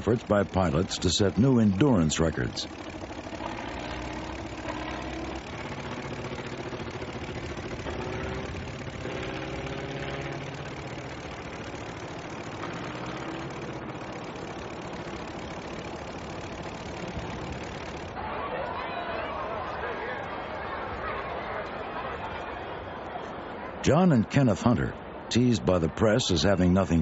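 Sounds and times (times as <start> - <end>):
piston aircraft engine droning: 0.0 - 18.3.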